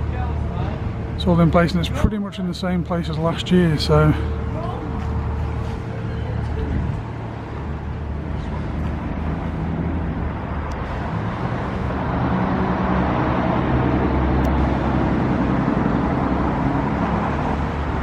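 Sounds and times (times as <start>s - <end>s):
traffic noise: 0.0s - 18.0s
vehicle engine running: 0.0s - 18.0s.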